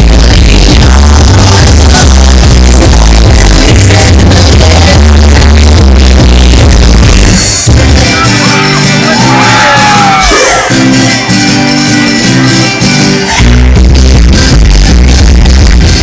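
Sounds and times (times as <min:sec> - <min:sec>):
electronic dance music: 0:00.0 - 0:16.0
crowd shouting and whooping: 0:08.0 - 0:11.2, 0:12.0 - 0:13.8.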